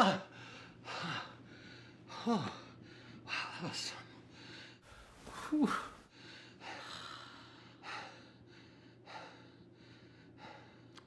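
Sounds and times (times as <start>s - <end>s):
person breathing heavily: 0.2s - 3.6s, 4.2s - 11.0s.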